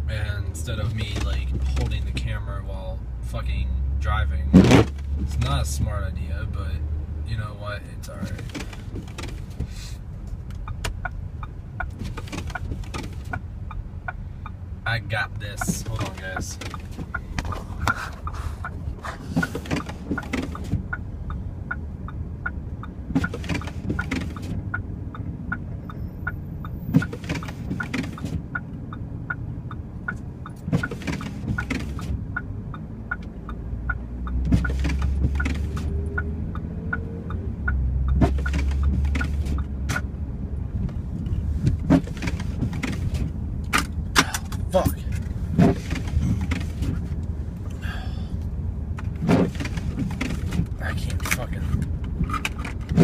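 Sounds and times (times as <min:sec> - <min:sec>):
engine and road rumble: 0:00.0 - 0:53.0
fast even ticking: 0:10.3 - 0:40.2.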